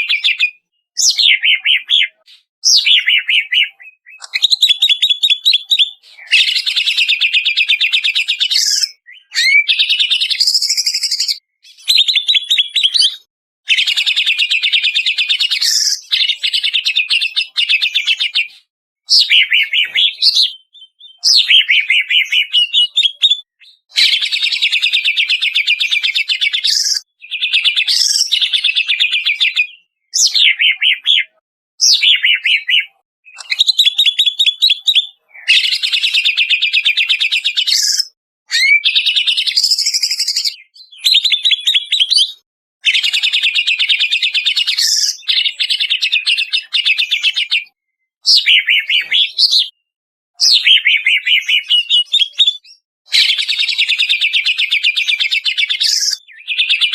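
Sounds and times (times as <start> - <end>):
bird singing chattering trills: 0.0 - 13.2.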